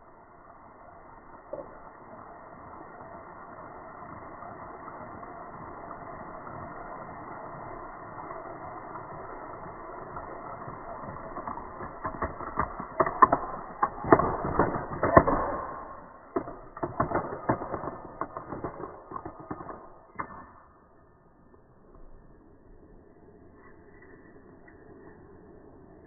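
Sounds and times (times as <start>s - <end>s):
clicks and knocks of small objects: 9.1s - 20.9s.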